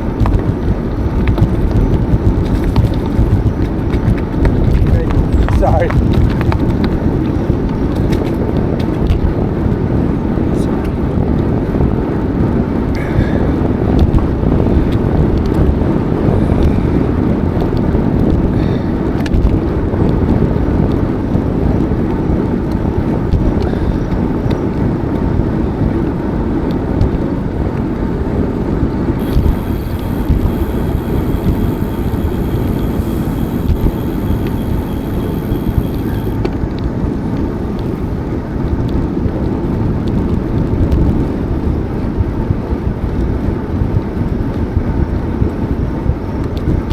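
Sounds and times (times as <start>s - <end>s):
bicycle tyre rumble: 0.0s - 46.9s
wind buffeting microphone: 0.0s - 46.9s
faint high thin whine: 29.2s - 36.5s.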